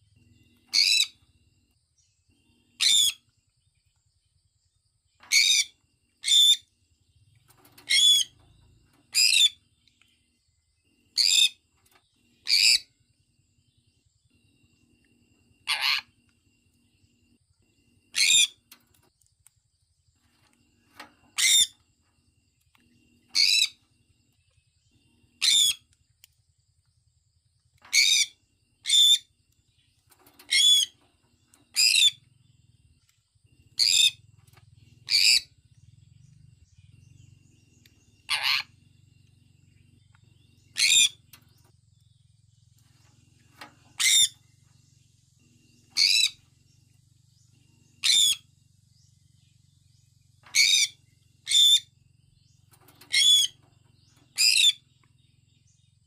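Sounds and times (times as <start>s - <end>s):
parrot high-pitched calls: 0.7s - 1.2s, 2.8s - 3.2s, 5.3s - 6.6s, 7.9s - 8.3s, 12.4s - 12.9s, 15.6s - 16.2s, 18.1s - 18.6s, 21.4s - 21.8s, 23.4s - 23.8s, 25.4s - 25.8s, 27.9s - 29.3s, 30.5s - 31.0s, 33.8s - 34.2s, 35.1s - 35.5s, 38.3s - 38.8s, 40.7s - 41.2s, 44.0s - 44.4s, 46.0s - 46.4s, 48.0s - 48.5s, 50.5s - 51.9s, 53.1s - 53.6s, 54.4s - 54.8s.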